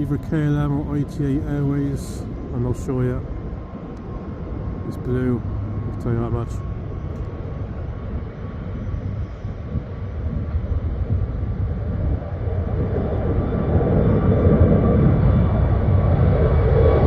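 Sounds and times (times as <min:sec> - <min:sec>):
jet airliner taking off: 0:00.0 - 0:17.0.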